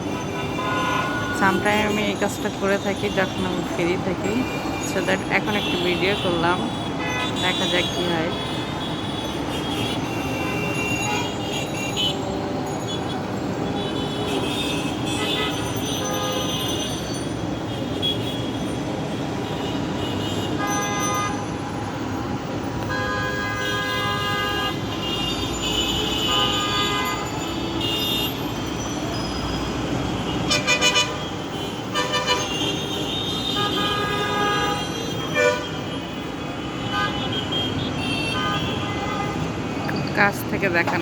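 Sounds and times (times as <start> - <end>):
traffic rumble: 0.0 - 41.0
vehicle horn honks: 32.0 - 35.8.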